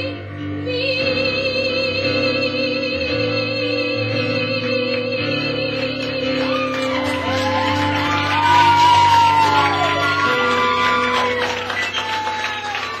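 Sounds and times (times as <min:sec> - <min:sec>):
audience whooping: 0:06.2 - 0:13.0.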